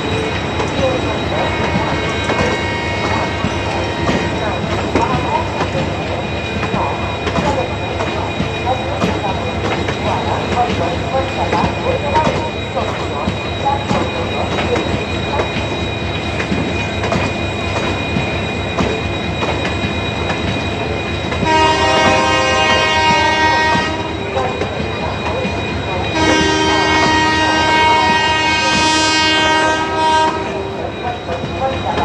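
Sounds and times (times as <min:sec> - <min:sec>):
clickety-clack over rail joints: 0:00.0 - 0:32.0
train wheels on rail: 0:00.0 - 0:32.0
train horn: 0:01.4 - 0:04.4, 0:21.4 - 0:24.5, 0:26.1 - 0:30.9.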